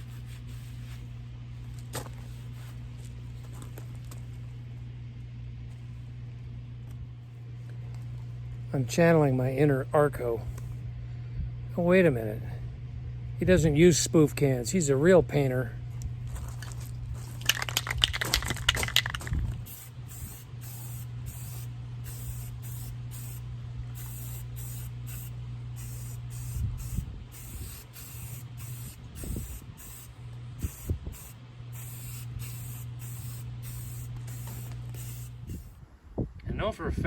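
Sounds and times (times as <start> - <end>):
steady low hum: 0.0 - 37.0
spray paint can spraying: 17.4 - 35.8.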